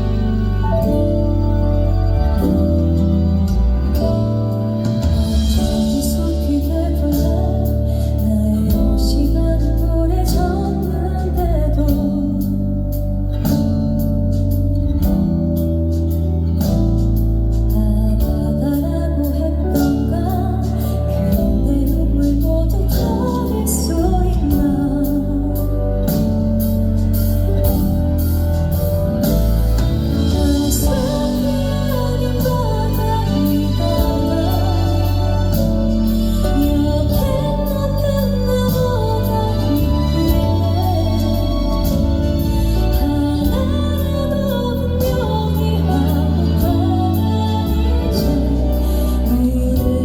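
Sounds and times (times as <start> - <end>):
keyboard and guitar accompaniment: 0.0 - 50.0
woman singing a slow ballad: 4.9 - 15.0, 16.3 - 27.8, 30.0 - 50.0.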